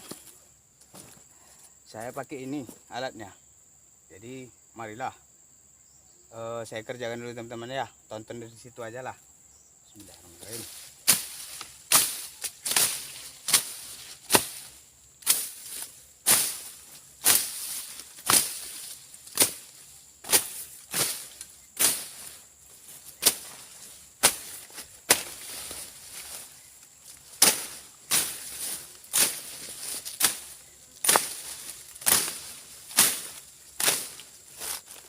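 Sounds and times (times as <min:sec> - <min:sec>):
blade chopping through brush: 0:11.0 - 0:22.4, 0:23.1 - 0:26.6, 0:27.2 - 0:35.0.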